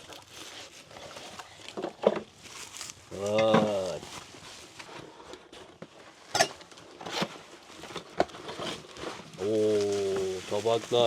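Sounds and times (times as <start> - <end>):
soft rustle: 0.0 - 11.0.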